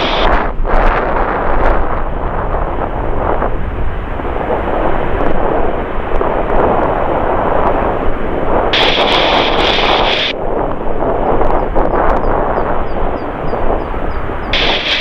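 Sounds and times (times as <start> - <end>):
high hiss: 0.0 - 0.3, 6.6 - 15.0
jet engines roaring: 0.0 - 15.0.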